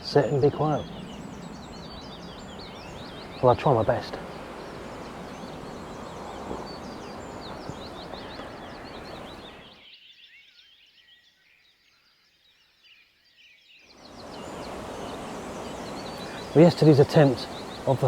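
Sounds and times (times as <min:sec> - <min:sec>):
steady rushing background: 0:00.0 - 0:09.7, 0:14.1 - 0:18.0
birds chirping and twittering: 0:00.0 - 0:18.0.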